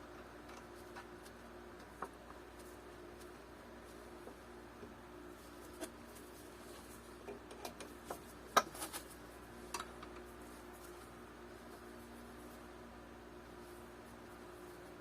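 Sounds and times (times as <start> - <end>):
small clicks and taps of metal parts: 0.1 - 2.4, 9.7 - 10.3.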